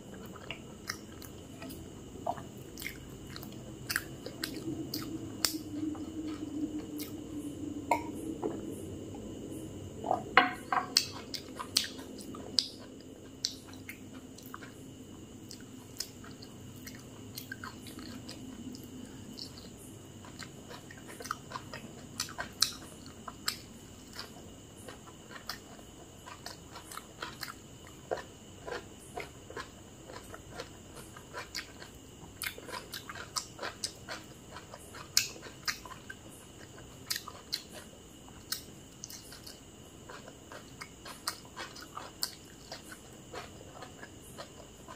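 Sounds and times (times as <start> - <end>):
person chewing food: 0.0 - 8.8, 10.2 - 44.9
food crunch: 20.2 - 44.9.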